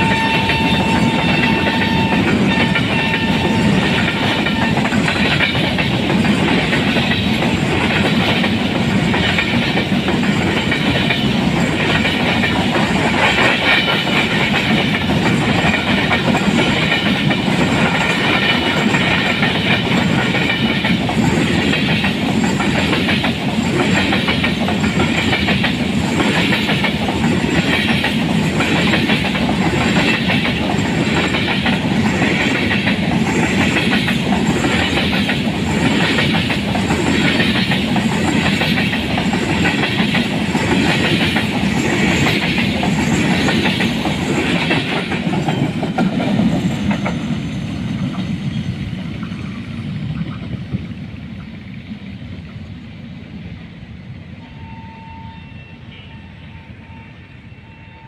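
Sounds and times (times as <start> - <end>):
train wheels clattering on track: 0.0 - 54.7
train rumble: 0.0 - 58.0.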